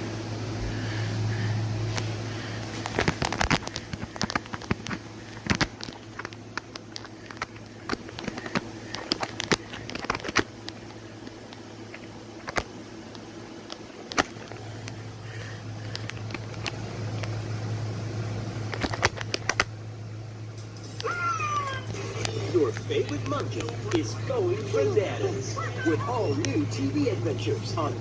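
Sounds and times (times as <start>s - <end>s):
steady low hum: 0.0s - 28.0s
sharp clicks and crackles: 1.9s - 15.0s, 15.8s - 17.4s, 18.6s - 19.8s.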